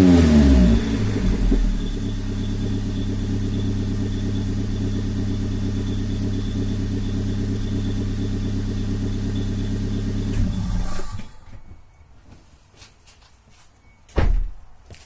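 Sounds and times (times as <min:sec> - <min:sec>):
car engine running: 0:00.0 - 0:11.5.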